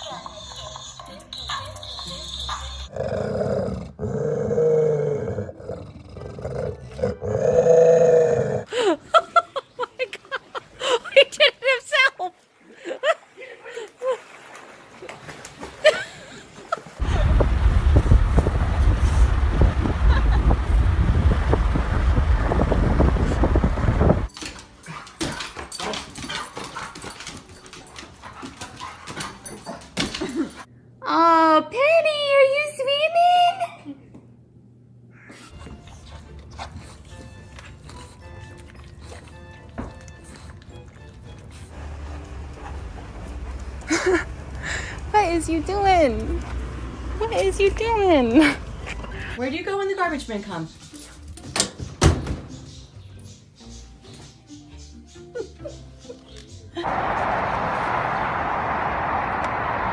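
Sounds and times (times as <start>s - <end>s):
animal growling calls: 2.9s - 8.7s
loud low rumble: 17.0s - 24.3s.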